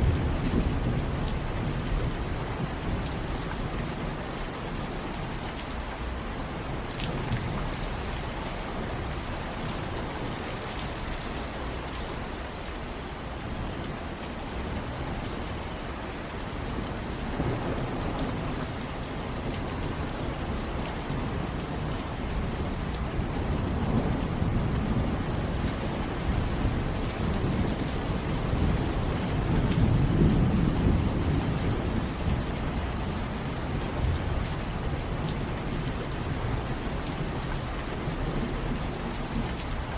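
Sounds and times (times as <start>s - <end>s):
low rolling thunder: 0.0s - 4.0s, 23.2s - 37.4s
steady rain: 0.0s - 39.9s.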